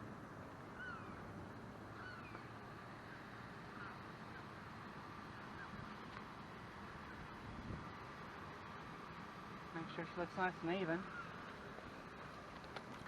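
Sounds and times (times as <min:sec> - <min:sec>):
bird calling: 0:00.7 - 0:01.3, 0:01.9 - 0:04.6, 0:05.3 - 0:05.8, 0:11.0 - 0:11.5.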